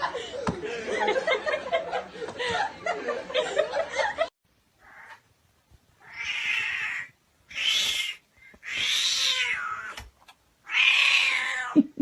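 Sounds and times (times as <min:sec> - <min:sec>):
cat yowling: 0:06.0 - 0:10.0, 0:10.6 - 0:11.8.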